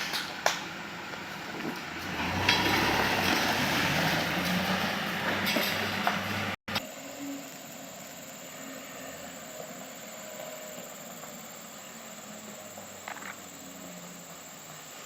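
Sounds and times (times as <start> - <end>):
truck engine hum: 0.0 - 15.0
rattling clanking noise: 4.2 - 6.4.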